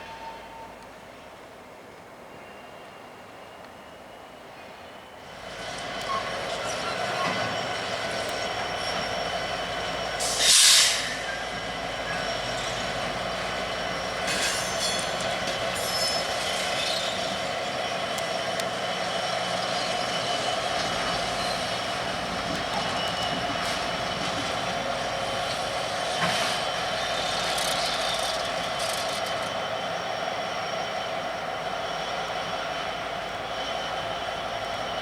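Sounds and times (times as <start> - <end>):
train wheels rumbling on rail: 2.4 - 35.0
air release hiss: 10.2 - 11.3.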